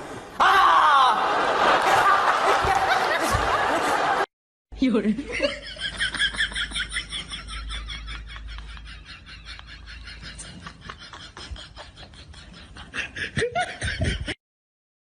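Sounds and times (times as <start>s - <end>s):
person laughing: 5.3s - 14.4s.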